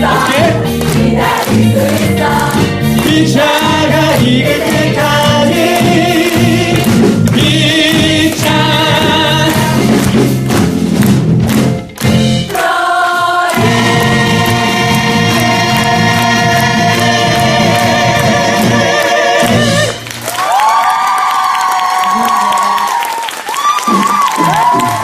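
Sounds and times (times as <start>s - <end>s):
ensemble singing with vibrato: 0.0s - 10.2s, 12.5s - 20.1s
instrumental accompaniment: 0.0s - 20.4s.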